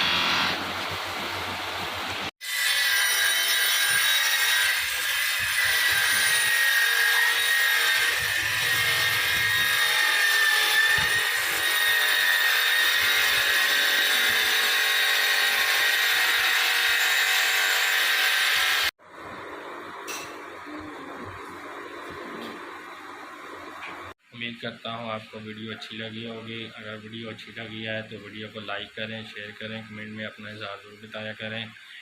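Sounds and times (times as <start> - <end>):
power tool whining under load: 0.0 - 1.0.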